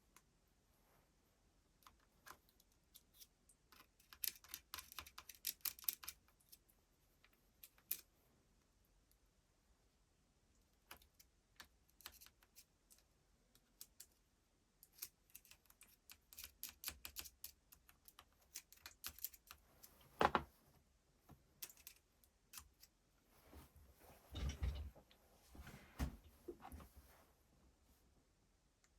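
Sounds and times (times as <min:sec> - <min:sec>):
small hard parts clicking: 0:03.7 - 0:06.2.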